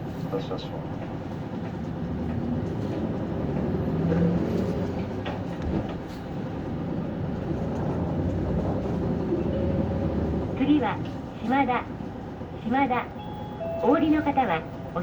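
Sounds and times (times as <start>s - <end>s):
bus diesel engine pulling away: 0.0s - 11.4s.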